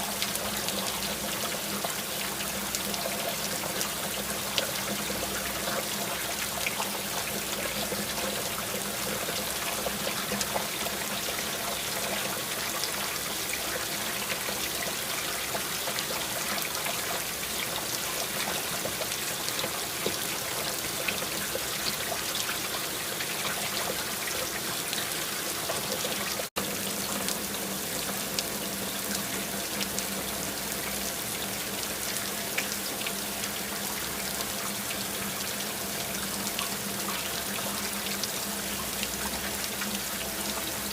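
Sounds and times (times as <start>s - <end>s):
steady rain drops: 0.0s - 40.9s
water trickling and pouring: 0.0s - 40.9s.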